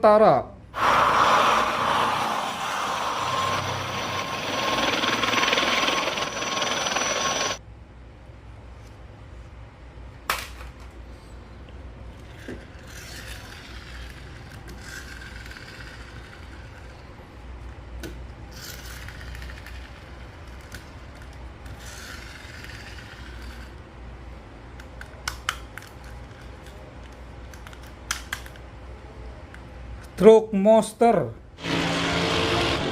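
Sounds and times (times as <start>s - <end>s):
rubbing and scraping of toy: 12.2s - 17.2s, 18.5s - 23.9s.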